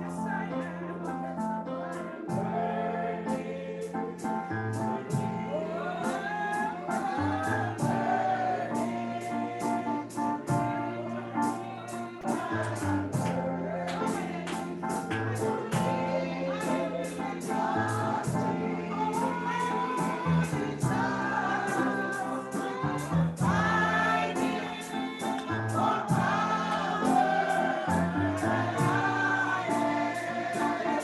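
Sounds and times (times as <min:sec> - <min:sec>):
group of voices singing: 0:00.0 - 0:31.0.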